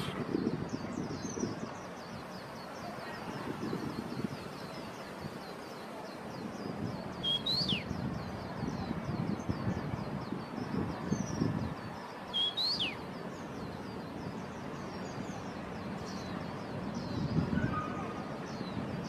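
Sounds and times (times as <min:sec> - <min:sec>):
songbirds chirping: 0:00.0 - 0:19.0
whistled bird note: 0:07.2 - 0:07.9, 0:12.3 - 0:13.0, 0:17.5 - 0:18.2.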